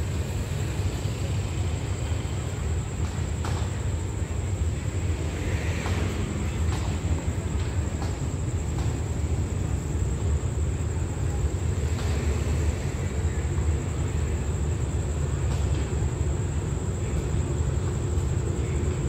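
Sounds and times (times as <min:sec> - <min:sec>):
diesel locomotive rumbling: 0:00.0 - 0:19.0.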